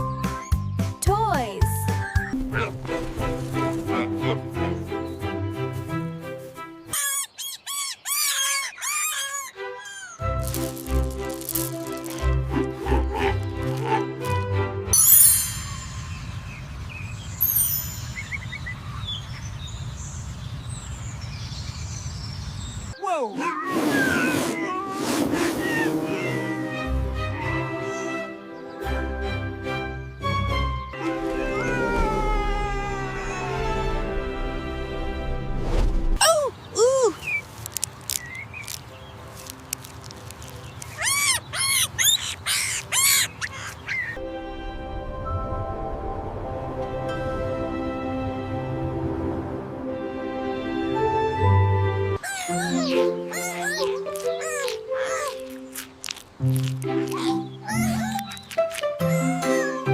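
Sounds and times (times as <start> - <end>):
birds chirping: 0.0 - 14.2, 15.0 - 24.9, 25.6 - 33.8, 36.2 - 44.2, 52.2 - 59.9
monkey calling: 6.9 - 10.3, 40.9 - 44.2, 52.2 - 55.7, 57.0 - 59.9.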